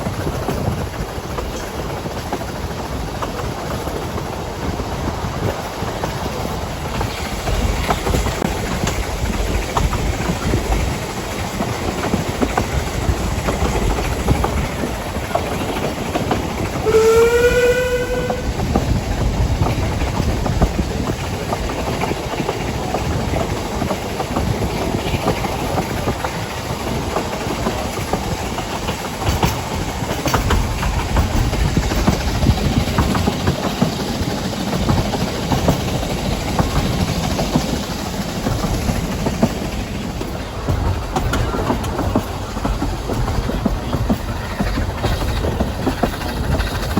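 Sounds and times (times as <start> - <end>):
faint rail clicks: 0.0 - 46.9
train rumbling: 0.0 - 46.9
train whistle: 16.8 - 18.6.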